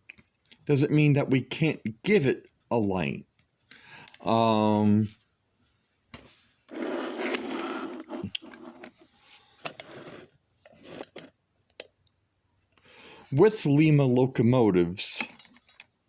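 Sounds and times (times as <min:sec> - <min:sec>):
small parts scraping and rubbing: 0:06.7 - 0:11.4.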